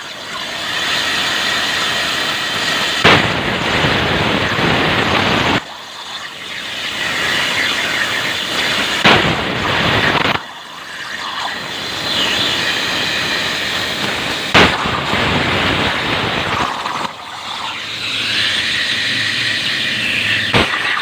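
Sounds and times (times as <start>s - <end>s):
plasma cutter hissing arc: 0.0s - 21.0s
thin high whine: 0.0s - 21.0s
sharp crack: 3.0s - 4.8s, 9.0s - 10.4s, 14.0s - 17.2s, 20.4s - 21.0s.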